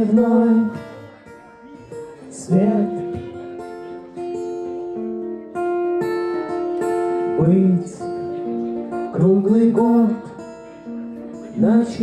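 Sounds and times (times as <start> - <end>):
person singing: 0.0 - 4.6
acoustic guitar strumming: 0.0 - 12.0.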